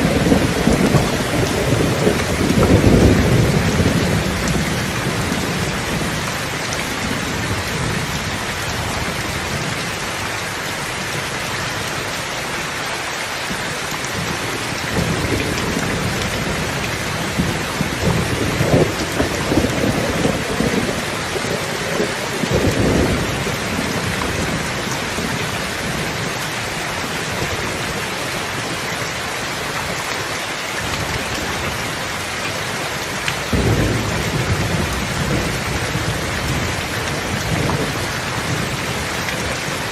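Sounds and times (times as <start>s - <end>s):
rolling thunder rumbles: 0.0s - 10.0s, 13.5s - 28.8s, 33.4s - 39.9s
heavy rain falling: 0.0s - 39.9s.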